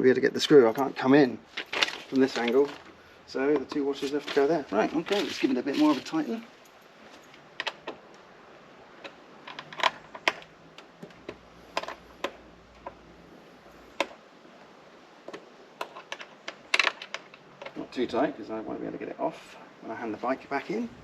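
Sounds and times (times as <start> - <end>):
hand tools and screws clicking: 15.3 - 17.8.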